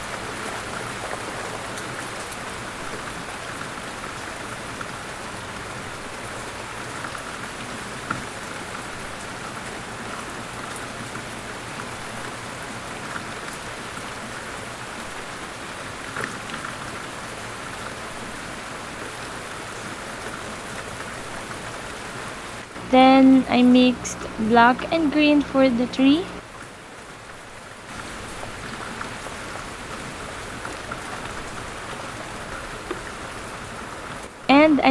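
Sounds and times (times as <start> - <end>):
steady rain hiss: 17.8 - 26.6.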